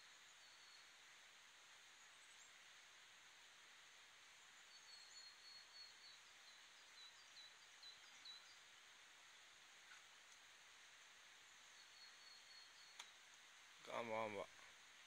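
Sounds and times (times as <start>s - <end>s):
faint steady hiss: 0.0s - 15.0s
small bird chirping: 4.6s - 8.7s, 11.4s - 13.3s.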